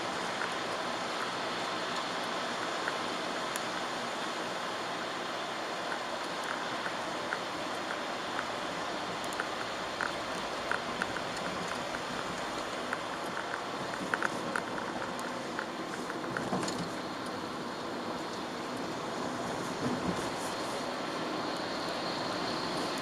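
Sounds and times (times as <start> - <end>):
raindrops ticking on windscreen: 0.0 - 23.0
tyres hissing on wet road: 0.0 - 23.0.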